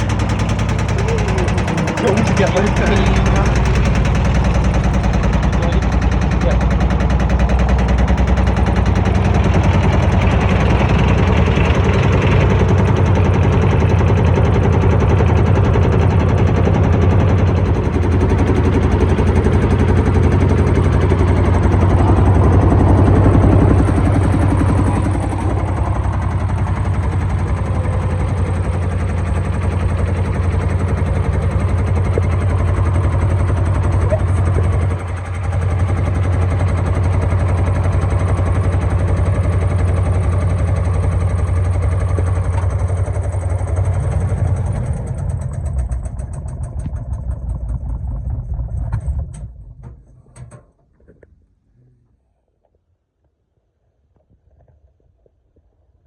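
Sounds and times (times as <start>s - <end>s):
drum rattling and banging: 0.0s - 50.5s
washing machine running: 0.0s - 50.5s.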